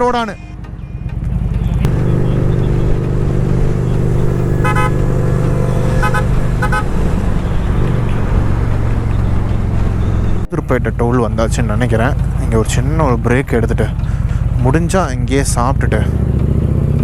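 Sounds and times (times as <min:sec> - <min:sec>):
road and wind noise: 0:00.0 - 0:17.0
motorcycle engine running: 0:00.5 - 0:17.0
horn honks: 0:01.8 - 0:10.4.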